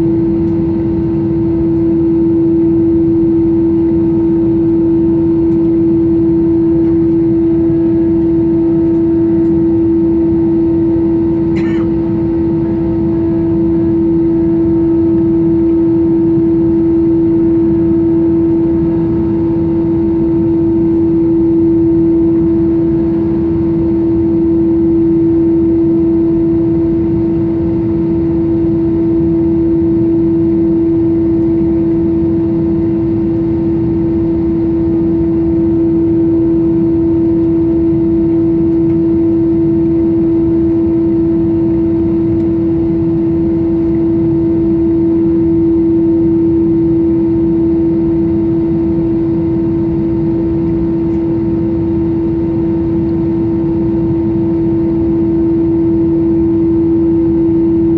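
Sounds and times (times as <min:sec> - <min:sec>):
constant rumble: 0:00.0 - 0:21.5, 0:46.9 - 0:55.4
aircraft cabin engine whine: 0:00.0 - 0:57.9.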